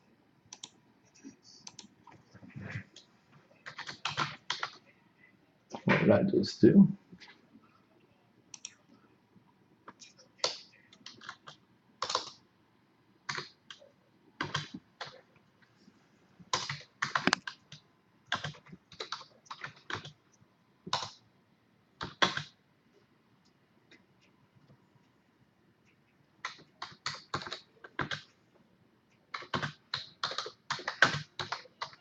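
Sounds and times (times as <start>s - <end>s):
typing on a computer keyboard: 0.5s - 0.8s, 1.6s - 2.2s, 2.9s - 4.8s, 8.5s - 8.8s, 9.8s - 12.5s, 13.2s - 15.2s, 16.5s - 20.2s, 20.8s - 21.2s, 22.0s - 22.6s, 26.4s - 28.3s, 29.1s - 32.0s.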